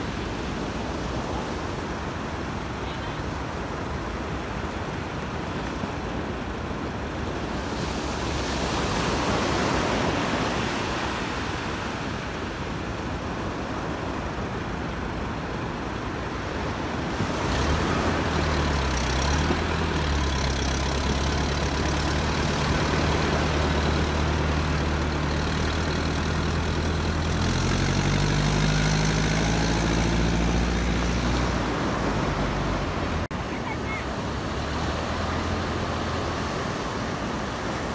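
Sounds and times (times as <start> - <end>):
surf washing on beach: 0.0 - 37.9
tractor engine running: 17.2 - 33.3.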